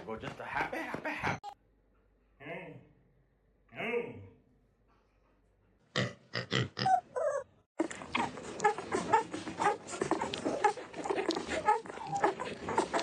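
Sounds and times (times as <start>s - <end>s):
pet animal crying: 6.8s - 13.0s.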